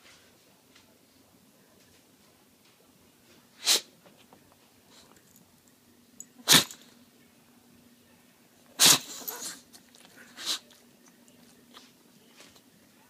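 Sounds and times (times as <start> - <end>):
dog sneezing: 3.6 - 3.9, 6.4 - 6.9, 8.8 - 9.7, 10.3 - 10.7.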